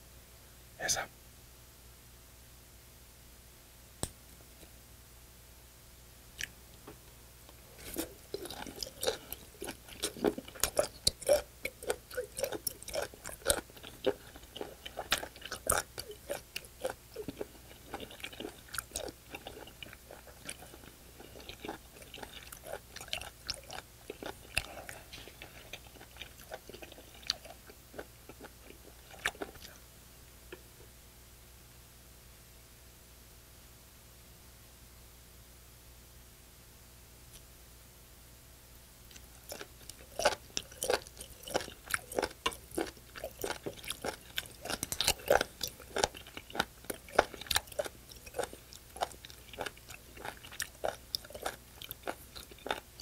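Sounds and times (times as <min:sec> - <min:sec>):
crisp crunchy chewing: 0:07.7 - 0:29.8, 0:39.1 - 0:53.0.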